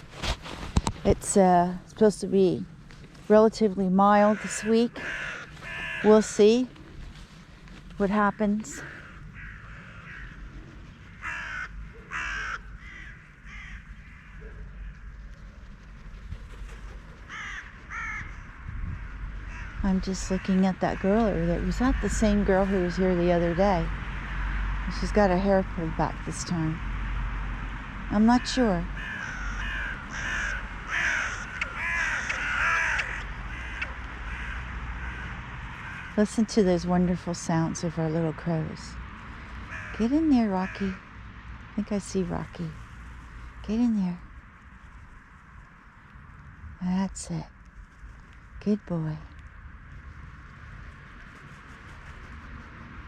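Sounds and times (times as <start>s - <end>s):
crows cawing: 4.2s - 6.4s, 8.8s - 10.5s, 11.1s - 15.0s, 17.3s - 19.8s, 24.1s - 24.8s, 28.3s - 36.2s, 39.4s - 41.0s.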